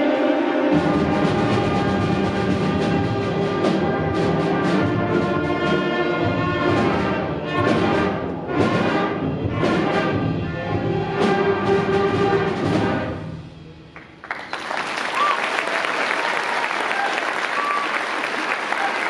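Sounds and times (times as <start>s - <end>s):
drum and timpani strokes: 0.0s - 14.2s
concert band playing: 0.0s - 19.0s.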